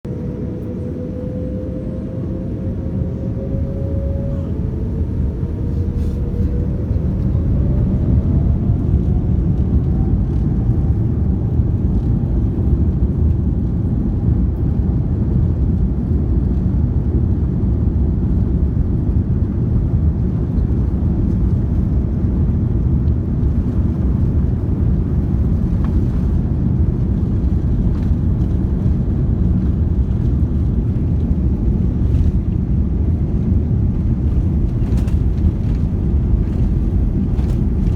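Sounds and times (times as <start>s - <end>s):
jet engines spooling up: 0.1s - 11.1s.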